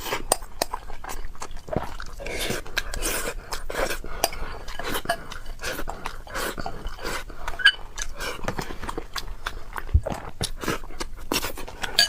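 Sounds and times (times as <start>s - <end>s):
chewing: 0.0s - 12.0s
utensils clinking on a dish: 7.6s - 7.8s.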